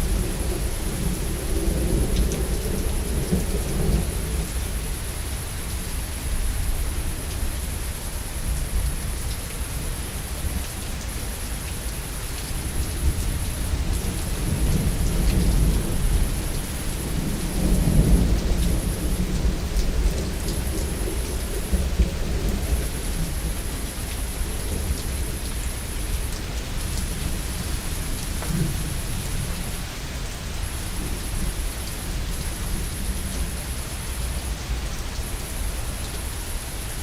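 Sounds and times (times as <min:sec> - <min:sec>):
low thunder rumbling: 0:00.0 - 0:07.2, 0:12.6 - 0:34.6
steady rain falling: 0:00.0 - 0:37.0.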